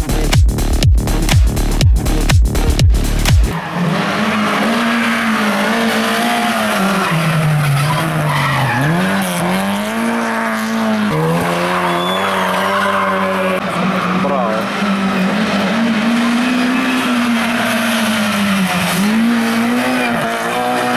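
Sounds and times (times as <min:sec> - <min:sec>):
race car engine revving: 0:00.0 - 0:20.9
tyres squealing on tarmac: 0:03.6 - 0:09.6, 0:11.1 - 0:15.4.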